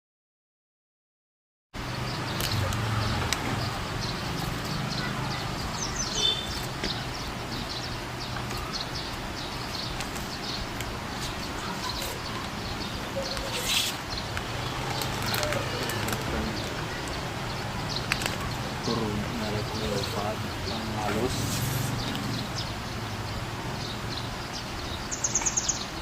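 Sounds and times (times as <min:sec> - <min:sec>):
small birds chirping: 0:01.8 - 0:26.0
rustling noise: 0:09.6 - 0:12.6, 0:13.3 - 0:16.8, 0:21.3 - 0:22.4.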